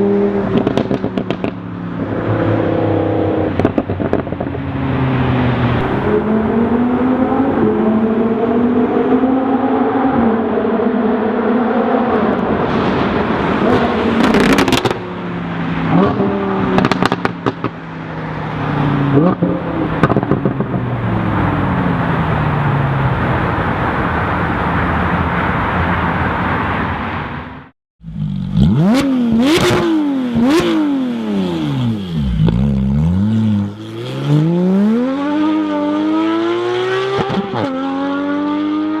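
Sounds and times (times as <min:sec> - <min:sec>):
exhaust crackles and pops: 0:00.5 - 0:01.6, 0:16.8 - 0:17.8
sports car engine revving: 0:28.1 - 0:39.0.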